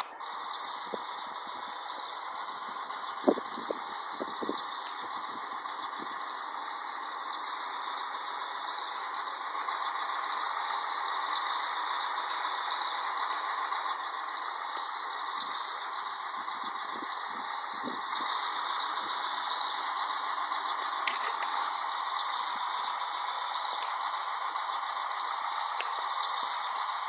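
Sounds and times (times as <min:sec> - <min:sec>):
truck cab road noise: 0:00.0 - 0:27.0.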